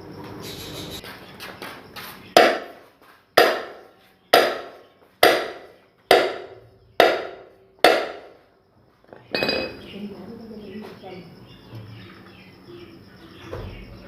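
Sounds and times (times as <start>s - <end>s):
hammer tapping: 3.4s - 3.8s, 4.4s - 8.3s.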